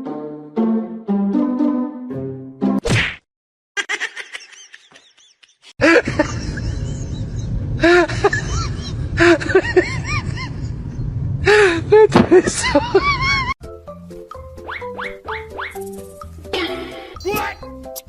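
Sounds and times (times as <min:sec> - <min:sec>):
rumbling background noise: 0:06.0 - 0:13.5
animal squeaky calls: 0:14.7 - 0:16.0.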